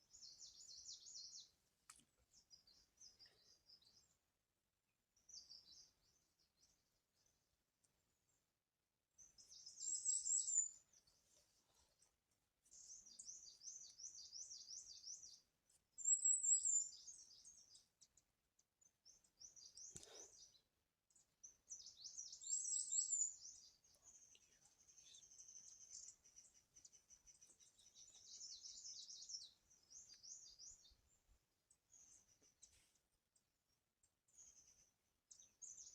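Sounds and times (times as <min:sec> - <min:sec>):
small songbirds chirping: 0:00.0 - 0:35.9
faint click: 0:01.8 - 0:02.1, 0:19.8 - 0:20.1.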